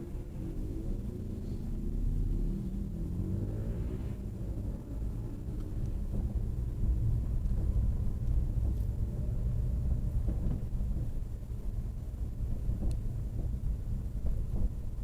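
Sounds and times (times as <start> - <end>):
car engines rumbling: 0.0 - 15.0
wind buffeting microphone: 5.0 - 15.0.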